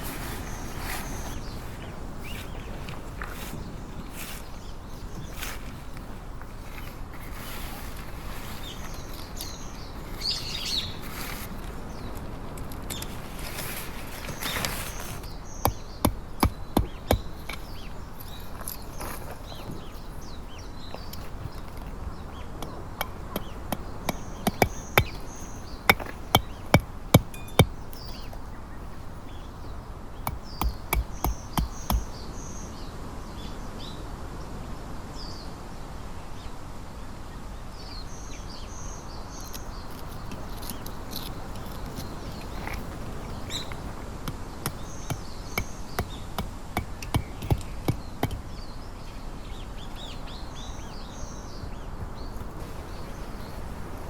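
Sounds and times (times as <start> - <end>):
bird chirping: 0.0 - 6.0, 8.5 - 13.2, 14.2 - 34.0, 37.8 - 54.0
tent pegs hammered into ground: 14.4 - 28.4, 30.2 - 32.2, 40.3 - 52.7.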